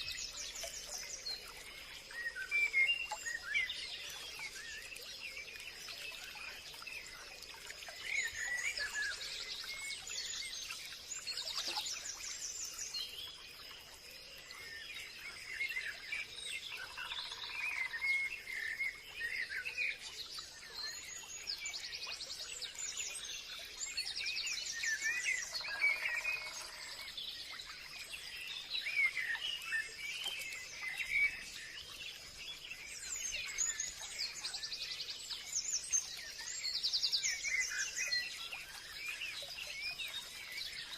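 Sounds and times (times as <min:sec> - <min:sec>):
birds chirping and trilling: 0:24.4 - 0:40.9.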